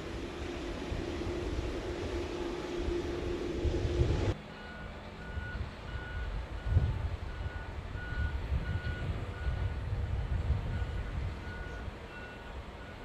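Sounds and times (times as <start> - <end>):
low continuous rumble: 0.0 - 13.0
reversing alarm beeps: 4.5 - 9.8, 10.7 - 13.0.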